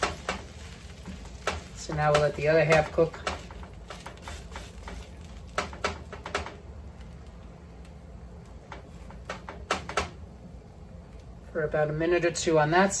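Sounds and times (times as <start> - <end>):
utensils clicking on cookware: 0.0 - 6.5
low steady hum: 0.0 - 13.0.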